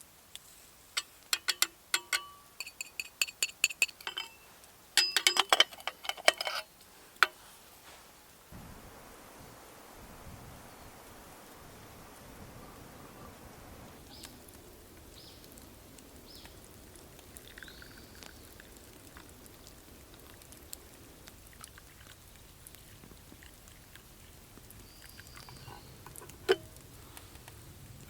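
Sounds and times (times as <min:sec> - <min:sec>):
faint clicks and crackles: 0:13.8 - 0:28.0.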